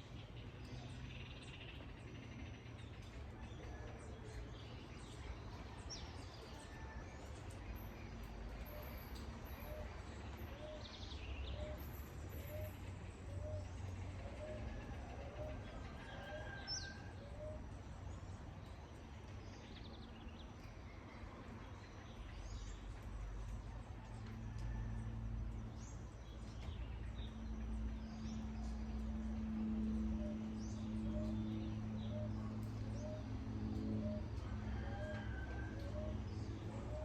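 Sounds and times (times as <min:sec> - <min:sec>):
low outdoor rumble: 0:00.0 - 0:37.0
steady low hum: 0:24.9 - 0:37.0.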